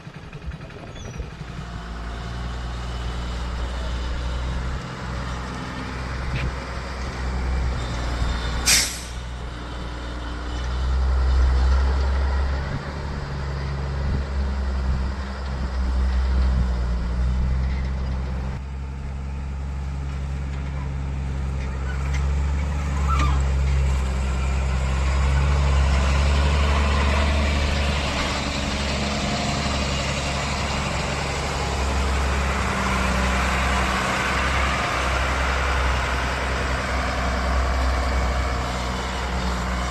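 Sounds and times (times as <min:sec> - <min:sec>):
heavy diesel engines running: 0:00.0 - 0:39.9
air brake hiss: 0:08.6 - 0:09.3.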